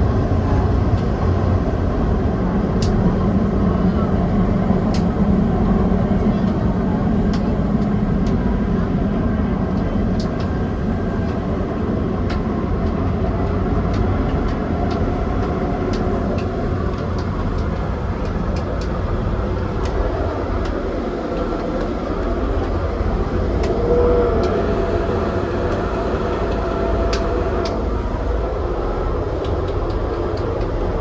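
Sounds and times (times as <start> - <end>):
train wheels rumbling on rail: 0.0 - 31.0
low hum: 8.6 - 30.0.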